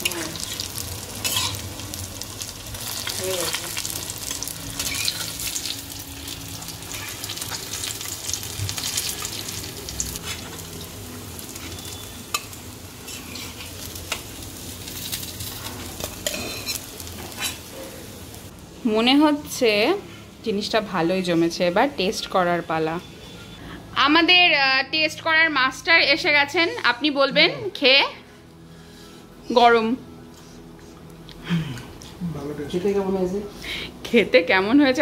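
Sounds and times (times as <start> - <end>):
fritters sizzling in oil: 0.0 - 18.5.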